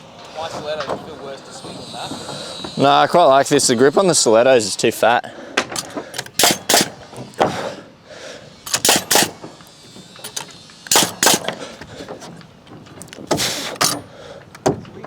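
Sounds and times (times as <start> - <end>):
nails hammered into timber: 5.8 - 7.6, 8.7 - 9.6, 10.9 - 11.6.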